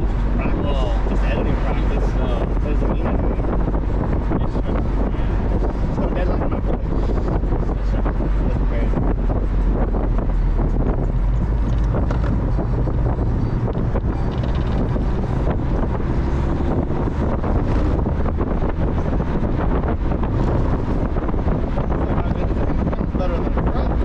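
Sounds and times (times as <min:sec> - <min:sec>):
car engine and road noise: 0:00.0 - 0:24.0
wind buffeting microphone: 0:00.0 - 0:24.0.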